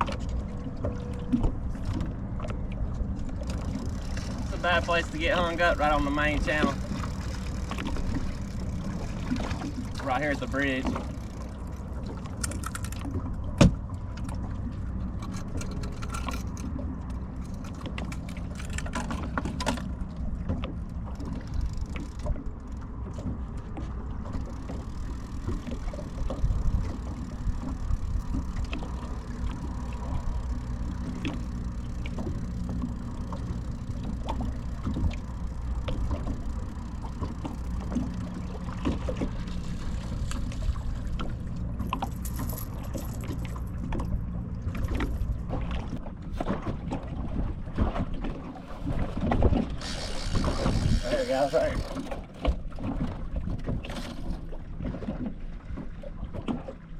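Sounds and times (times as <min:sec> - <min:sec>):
boat motor rumbling: 0:00.0 - 0:56.9
small clicks and knocks: 0:10.8 - 0:14.4.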